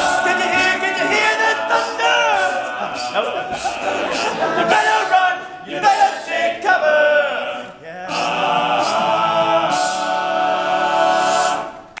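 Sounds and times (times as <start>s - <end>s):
male a cappella group singing: 0.0s - 12.0s.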